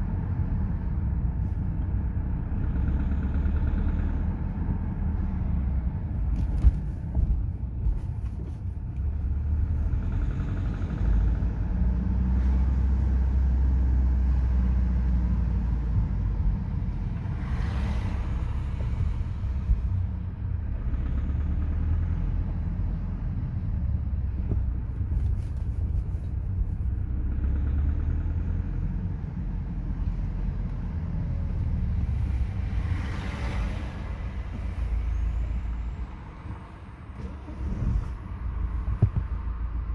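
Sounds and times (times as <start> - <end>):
car engine rumbling at low revs: 0.0 - 39.9.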